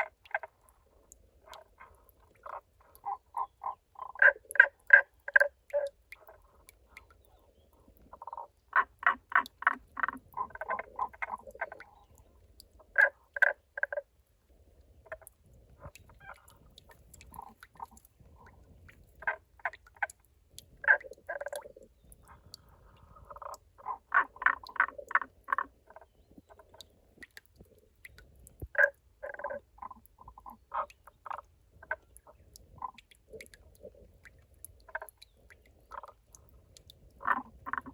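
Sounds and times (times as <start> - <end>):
frogs croaking: 0.0 - 14.1, 15.0 - 18.6, 19.2 - 27.3, 28.1 - 37.9.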